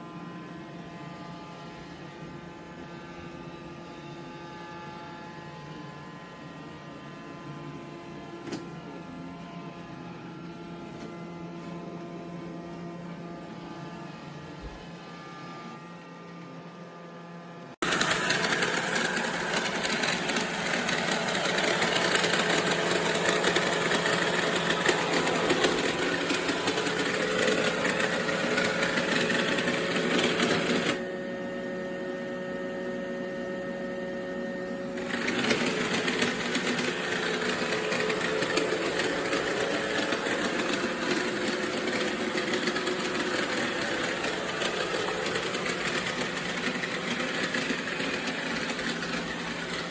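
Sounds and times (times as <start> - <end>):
robot vacuum whirring: 17.8 - 31.2, 34.8 - 49.9.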